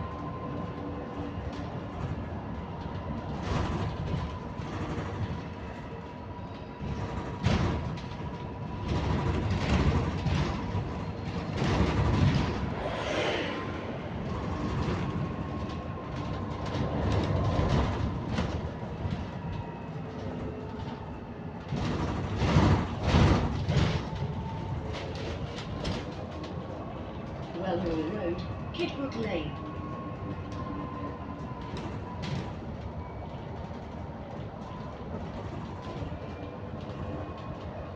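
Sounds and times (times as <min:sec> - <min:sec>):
bus drivetrain whine: 0:00.0 - 0:37.9
road rumble: 0:09.0 - 0:19.2.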